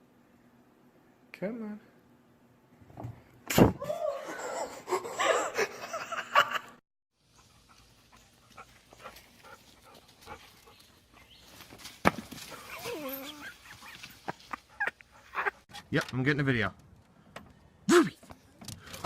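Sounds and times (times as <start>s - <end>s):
dog yelping and whining: 12.6s - 13.6s.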